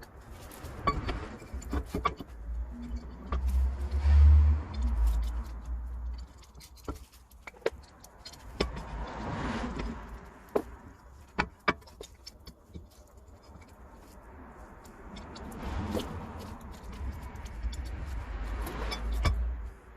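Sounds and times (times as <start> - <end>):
metal tools clinking: 4.7 - 9.0, 14.8 - 19.7.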